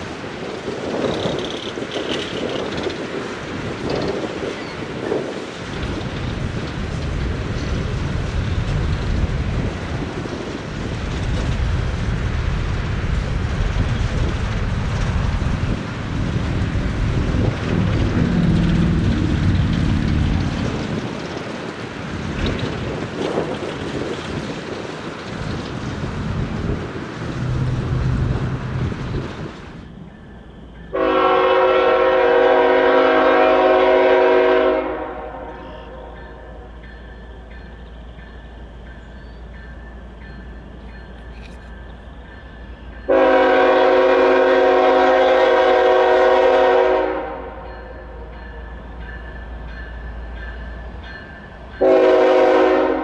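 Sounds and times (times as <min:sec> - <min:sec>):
wind buffeting the microphone: 0:00.0 - 0:30.9
passing train rumble: 0:00.0 - 0:53.0.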